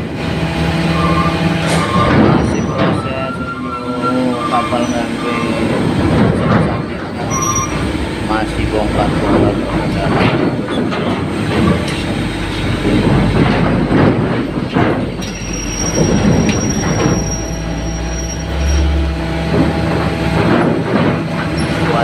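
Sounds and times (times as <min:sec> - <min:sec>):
low engine drone: 0:00.0 - 0:22.0
metallic clanks and rumble: 0:00.0 - 0:22.0
vehicle engines running: 0:00.0 - 0:22.0
thin high squeal: 0:01.0 - 0:05.7, 0:07.2 - 0:07.8, 0:15.3 - 0:19.0.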